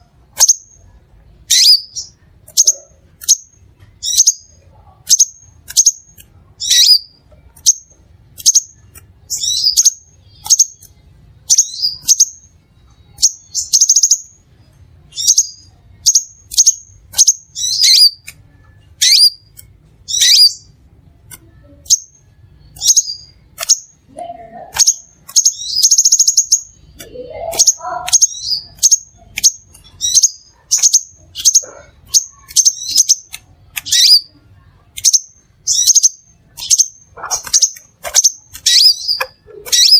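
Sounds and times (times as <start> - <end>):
buzzy bird trills: 0.0 - 14.4, 15.1 - 20.8, 21.6 - 39.9
bird calling with sharp chips: 24.7 - 34.3, 35.0 - 39.9.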